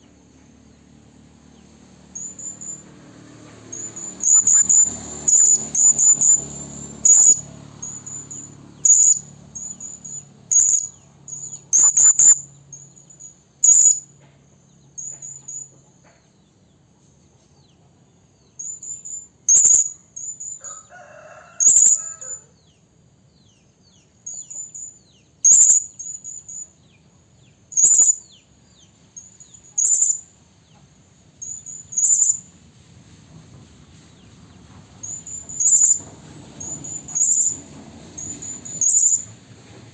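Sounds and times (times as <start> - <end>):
parrot high shrill calls: 2.2 - 2.9, 3.7 - 14.1, 18.6 - 22.6, 24.2 - 26.7, 27.7 - 28.4, 29.2 - 30.3, 31.4 - 32.5, 35.0 - 37.6, 38.2 - 39.3.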